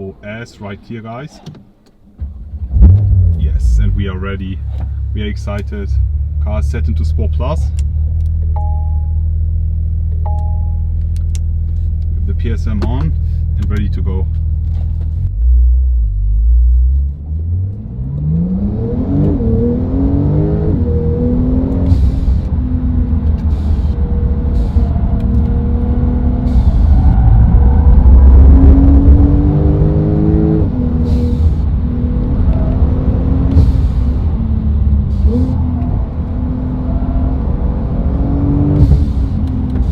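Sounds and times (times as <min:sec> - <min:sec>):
car engine accelerating hard: 0:14.7 - 0:39.9.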